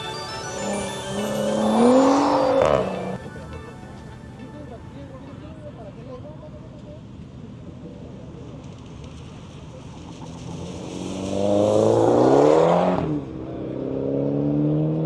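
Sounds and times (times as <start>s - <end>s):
car engine accelerating hard: 0.0s - 3.2s.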